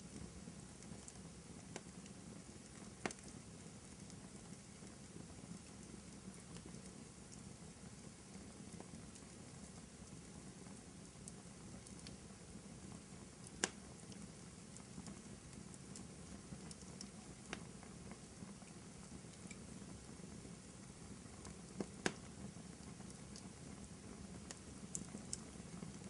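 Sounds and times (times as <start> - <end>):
fireplace fire crackling: 0.0 - 26.0
sharp pop of fire: 21.8 - 22.3.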